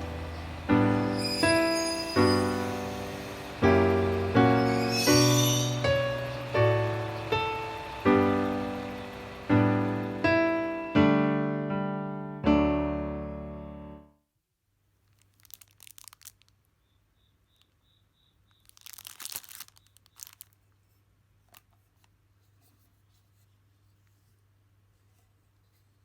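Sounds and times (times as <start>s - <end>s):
piano chords ringing: 0.0s - 14.1s.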